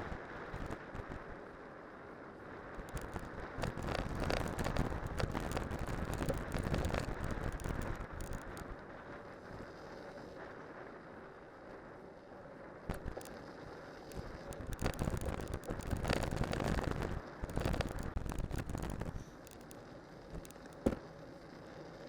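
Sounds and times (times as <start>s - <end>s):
tyre and wind noise: 2.9s - 8.6s.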